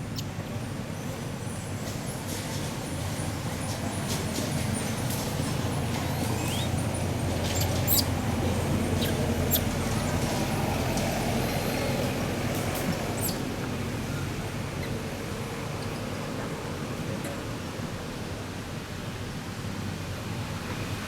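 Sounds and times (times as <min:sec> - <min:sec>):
high-pitched squeaks: 0:06.0 - 0:08.1, 0:08.9 - 0:09.7.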